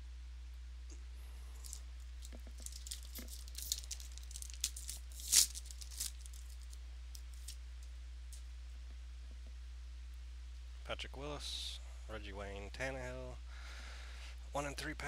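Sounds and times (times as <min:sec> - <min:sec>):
steady low hum: 0:00.0 - 0:15.0
wrapper crinkling and tearing: 0:01.6 - 0:07.6.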